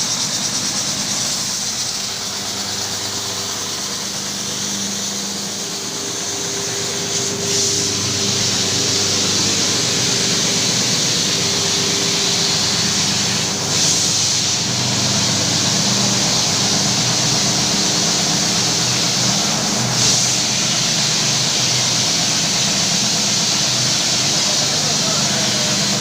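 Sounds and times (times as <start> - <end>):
carpet-washing machine running: 0.0 - 26.0.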